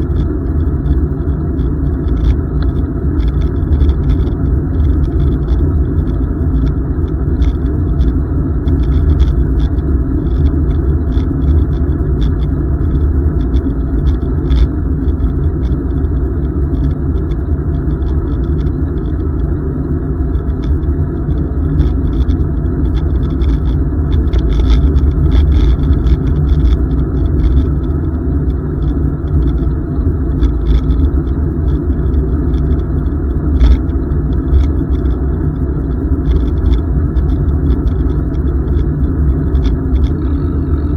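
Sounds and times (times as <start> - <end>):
wind rumble on microphone: 0.0 - 40.9
faint rattles: 36.2 - 40.9.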